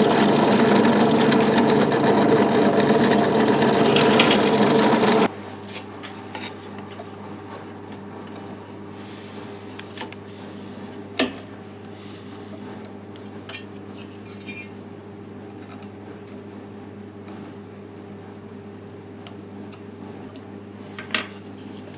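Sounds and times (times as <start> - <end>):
power saw running: 0.0 - 5.3.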